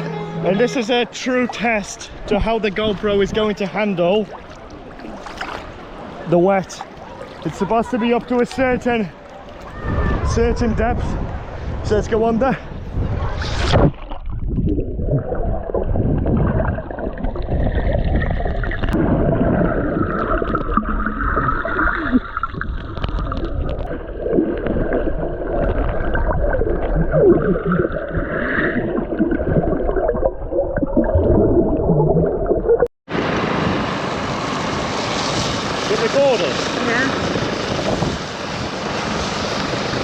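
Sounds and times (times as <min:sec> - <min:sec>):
underwater water gurgling and bubbling: 0:13.3 - 0:32.9.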